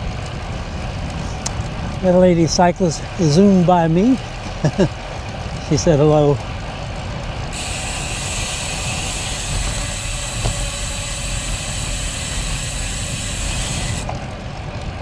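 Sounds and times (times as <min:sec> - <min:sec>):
wind rumble on microphone: 0:00.0 - 0:15.0
high hiss and buzz: 0:07.6 - 0:14.1.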